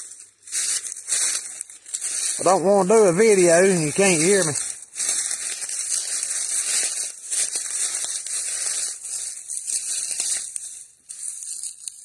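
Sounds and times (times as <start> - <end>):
footsteps crunching through dry leaves: 0.0 - 12.0.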